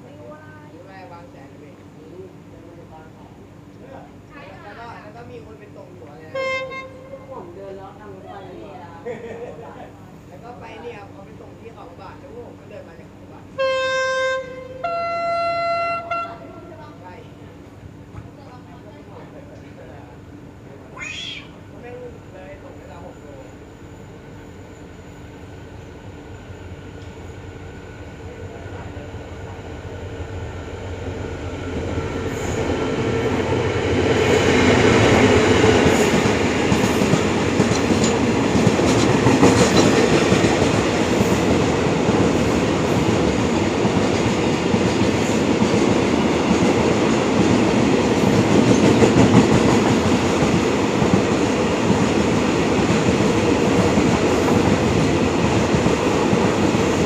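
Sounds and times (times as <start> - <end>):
train wheels on rails: 23.0 - 57.0.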